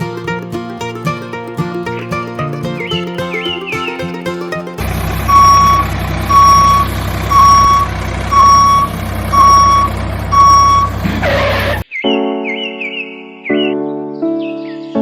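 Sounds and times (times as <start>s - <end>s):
music: 0.0s - 5.8s, 12.0s - 15.0s
engine rumble: 4.7s - 11.8s
reversing alarm beeping: 4.8s - 11.8s.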